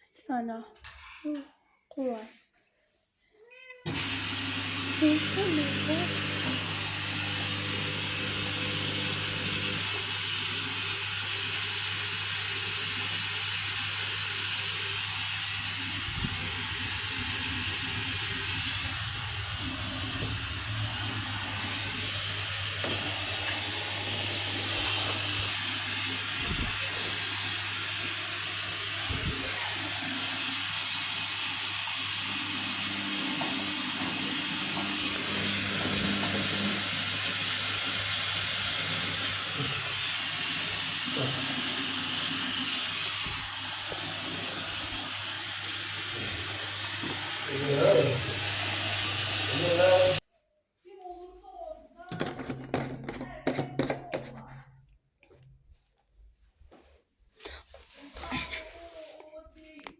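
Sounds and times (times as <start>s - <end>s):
water flowing into washing machine: 3.9s - 50.3s.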